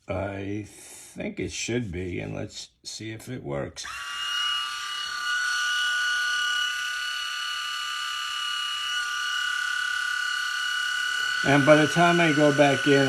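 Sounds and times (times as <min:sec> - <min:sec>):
electric clipper motor whine: 0:03.8 - 0:13.0.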